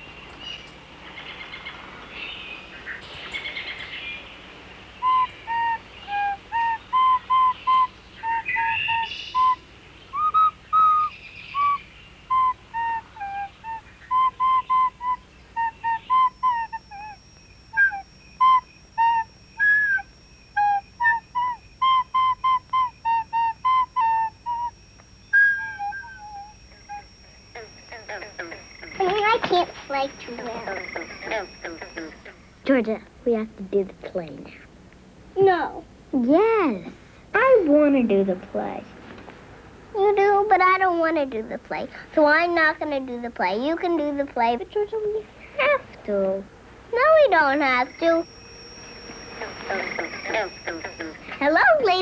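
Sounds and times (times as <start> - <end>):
chirping: 0.0 - 32.6, 47.3 - 52.0
faint high whine: 0.0 - 52.0
whistle-like tune: 5.0 - 32.3, 47.3 - 52.0.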